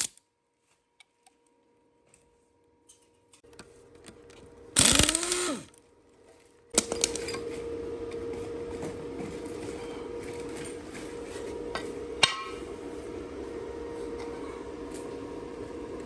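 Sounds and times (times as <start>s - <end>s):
handheld power tool running: 4.8s - 5.7s.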